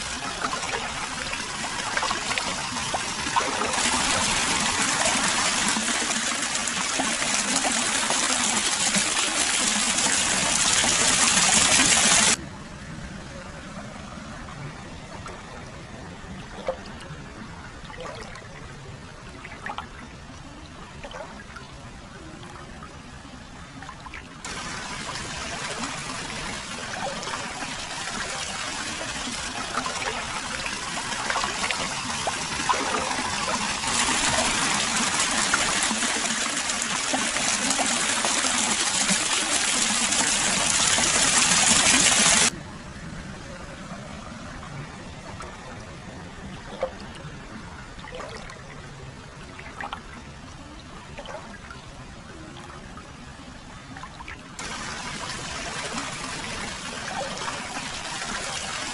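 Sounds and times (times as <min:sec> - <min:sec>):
water pouring and splashing: 0:00.0 - 0:12.4, 0:17.8 - 0:18.6, 0:19.4 - 0:20.0, 0:21.0 - 0:21.6, 0:23.8 - 0:42.6, 0:48.0 - 0:48.7, 0:49.4 - 0:50.2, 0:51.2 - 0:51.8, 0:54.0 - 0:58.9.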